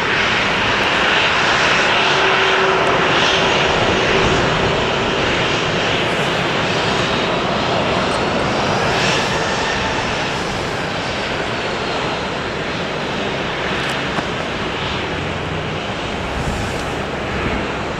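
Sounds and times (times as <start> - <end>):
jet engine rush with whine: 0.0 - 17.9.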